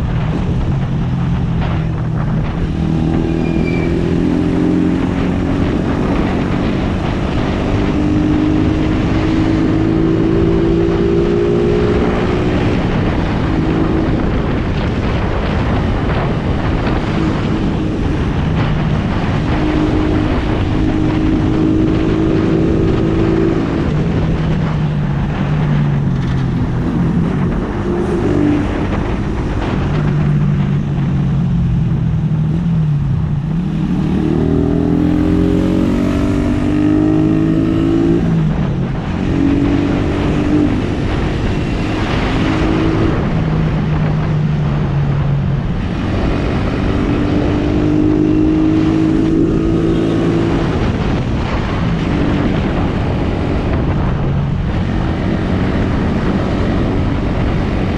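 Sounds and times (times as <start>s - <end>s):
motorcycle engine revving: 0.0s - 57.9s
wind and road noise: 0.0s - 57.9s.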